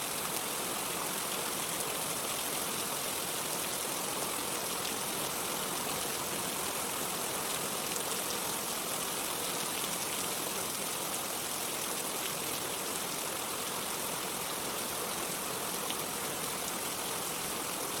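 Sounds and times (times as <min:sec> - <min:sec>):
steady rain hiss: 0:00.0 - 0:18.0.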